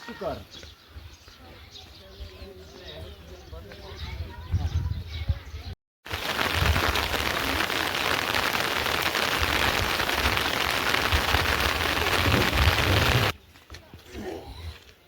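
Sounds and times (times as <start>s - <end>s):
heavy rain falling: 6.1s - 13.3s.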